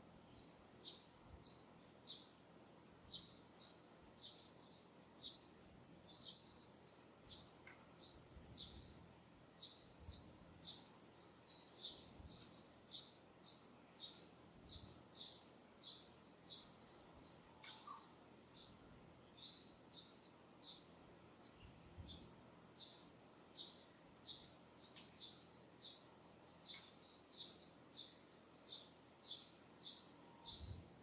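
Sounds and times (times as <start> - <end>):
faint low wind: 0.0 - 31.0
small bird chirping: 0.3 - 2.4, 3.1 - 30.9.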